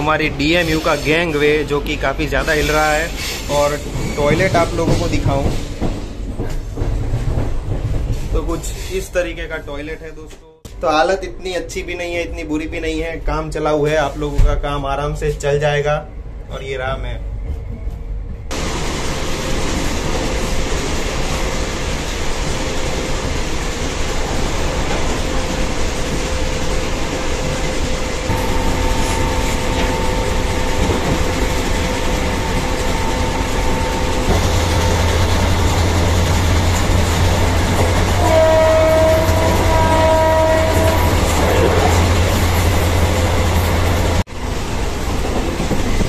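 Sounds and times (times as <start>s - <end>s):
train rushing rumble: 0.0s - 10.1s, 16.0s - 46.0s
train horn blasts: 28.3s - 31.0s, 37.4s - 42.0s.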